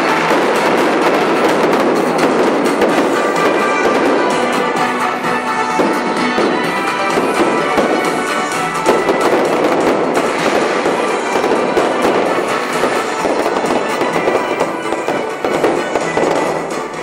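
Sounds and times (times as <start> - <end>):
fireworks pops and crackles: 0.0 - 5.0, 5.8 - 17.0
music playing: 0.0 - 17.0.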